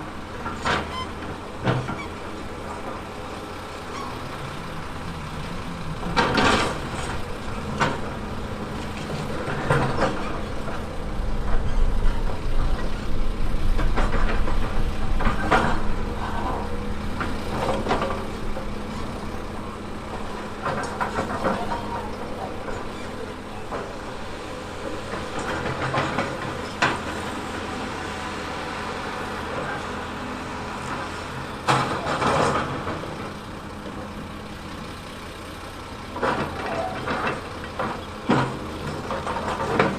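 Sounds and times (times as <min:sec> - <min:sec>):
heavy diesel machine running: 0:00.0 - 0:39.9
metal clanks and scrapes: 0:00.4 - 0:02.9, 0:06.0 - 0:13.0, 0:13.7 - 0:27.8.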